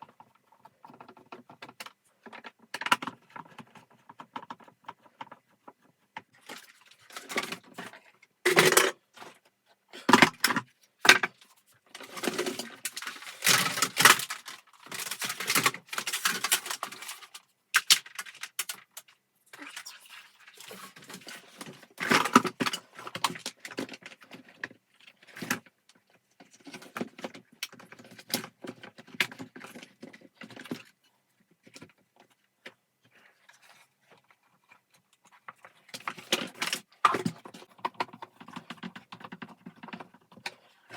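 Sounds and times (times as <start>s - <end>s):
vacuum cleaner parts clattering: 8.5s - 9.0s.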